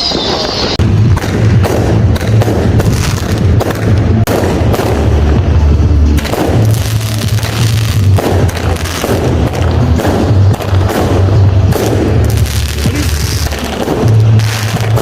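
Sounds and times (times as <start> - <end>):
falling firework whistle: 0.0 - 0.8
firework bangs and crackles: 0.0 - 15.0
deep bass thumping: 0.8 - 15.0.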